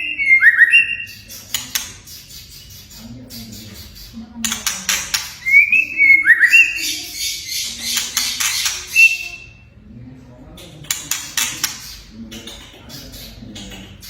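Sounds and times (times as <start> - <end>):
bird whistling: 0.0 - 4.2, 5.4 - 9.6.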